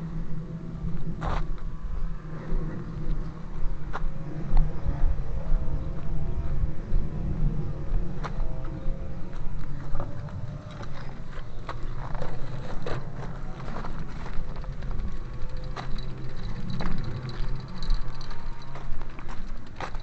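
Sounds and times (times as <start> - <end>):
vehicle rumbling over rough ground: 0.0 - 20.0
knocks and rattles: 12.0 - 20.0.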